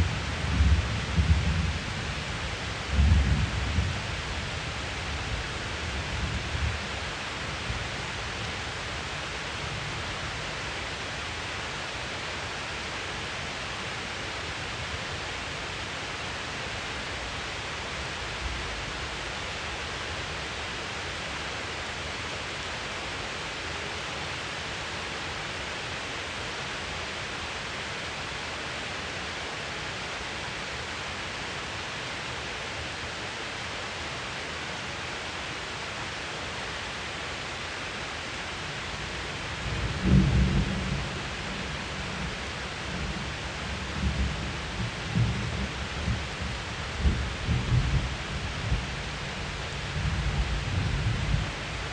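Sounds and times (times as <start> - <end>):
heavy rain hissing: 0.0 - 51.9
thunder rumble: 39.6 - 48.9.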